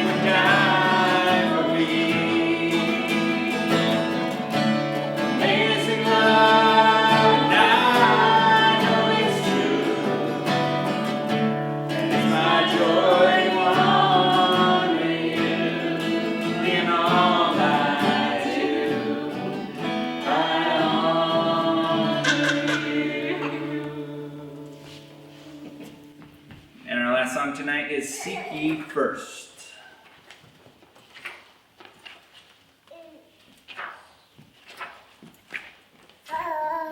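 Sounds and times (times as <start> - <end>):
voices singing: 0.0 - 26.2
acoustic guitar: 0.0 - 28.9.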